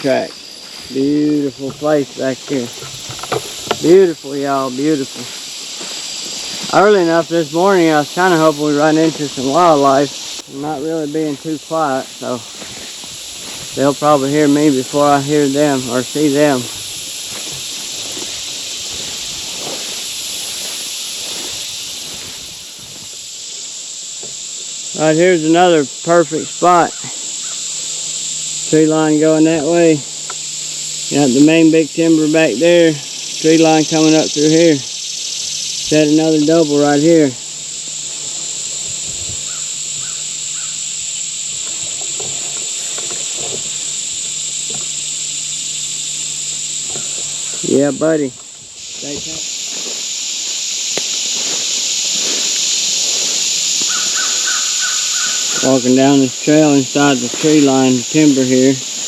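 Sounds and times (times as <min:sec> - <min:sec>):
crickets shrilling: 0:00.0 - 0:59.0
field insects chorus: 0:00.0 - 0:59.0
footsteps through grass: 0:00.0 - 0:59.0
short faint calls: 0:24.8 - 0:59.0.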